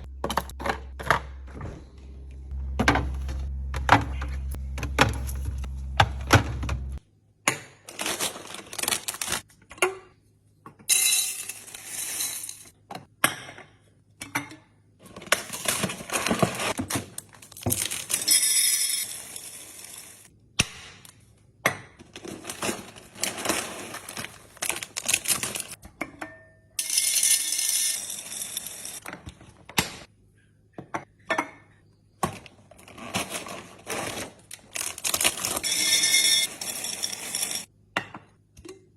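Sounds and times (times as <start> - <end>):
low hum: 0.0 - 7.0.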